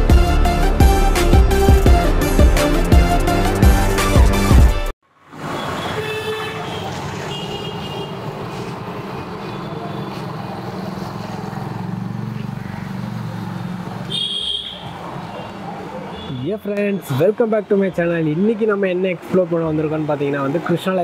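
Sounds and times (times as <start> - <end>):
intro music: 0.0 - 4.9
road traffic noise: 0.0 - 21.0
vehicle horn honks: 5.5 - 8.2, 14.1 - 14.9, 16.1 - 17.0.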